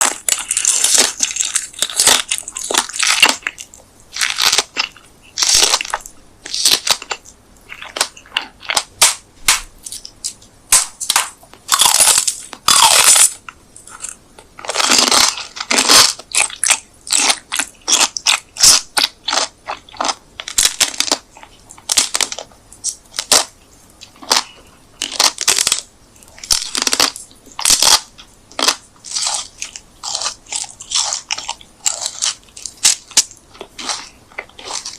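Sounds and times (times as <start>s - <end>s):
crunchy food being chewed: 0.0s - 34.9s.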